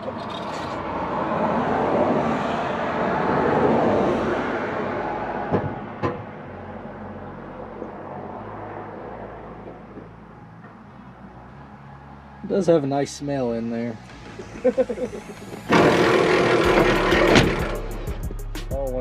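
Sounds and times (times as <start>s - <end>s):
vehicle rushing past: 0.0s - 9.9s, 13.5s - 18.3s.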